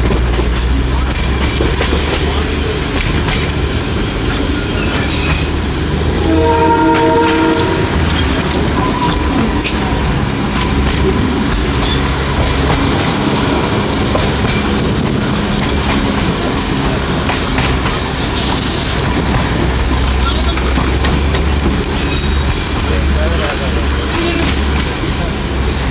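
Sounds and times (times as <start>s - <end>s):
train rumble: 0.0s - 25.9s
wheels clicking over rail joints: 0.0s - 25.9s
train horn blast: 6.1s - 10.5s.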